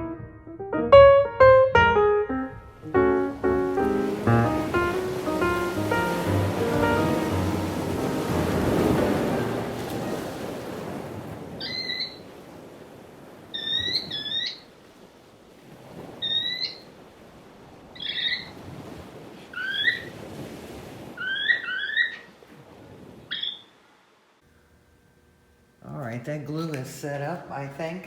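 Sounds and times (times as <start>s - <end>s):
surf hissing: 2.8s - 11.8s
short bird calls: 11.6s - 12.3s, 13.6s - 14.7s, 16.2s - 16.9s, 18.0s - 18.6s, 19.6s - 20.1s, 21.2s - 22.3s, 23.3s - 23.7s.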